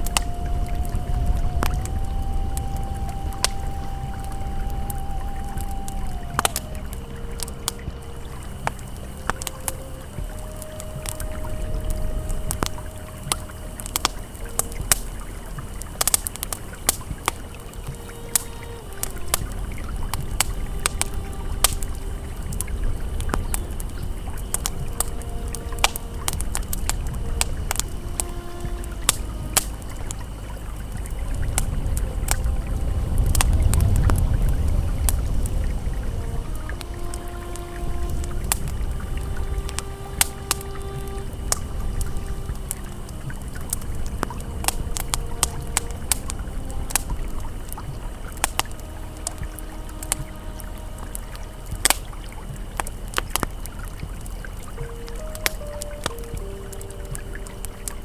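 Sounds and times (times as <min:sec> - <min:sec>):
campfire crackling and popping: 0:00.0 - 0:58.0
river flowing: 0:00.0 - 0:58.0.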